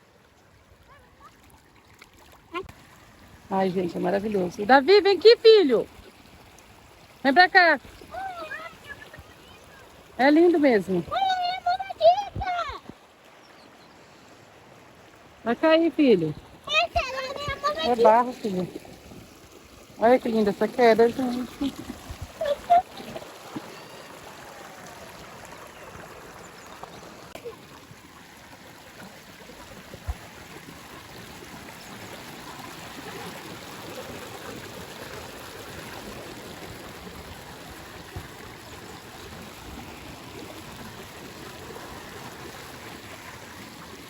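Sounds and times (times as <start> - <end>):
water rushing over rocks: 2.5 - 13.4, 15.2 - 44.0.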